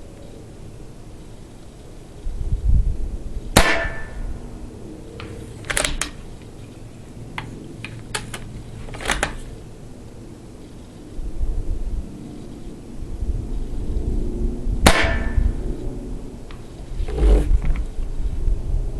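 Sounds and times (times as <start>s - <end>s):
wind buffeting microphone: 2.2s - 4.8s, 13.0s - 18.9s
paintball rifle shot: 3.6s - 4.2s, 14.8s - 15.5s.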